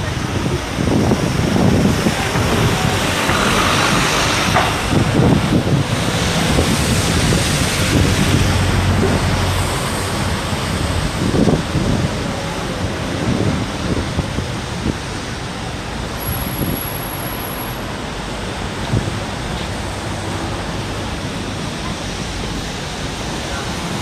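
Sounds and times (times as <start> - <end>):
wind buffeting microphone: 0.0 - 17.0
street traffic: 0.0 - 24.0.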